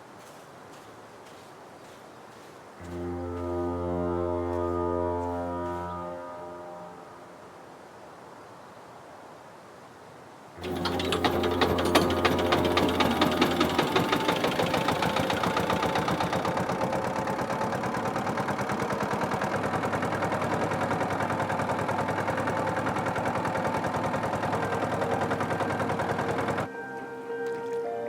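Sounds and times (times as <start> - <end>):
small engine knocking: 10.6 - 26.7.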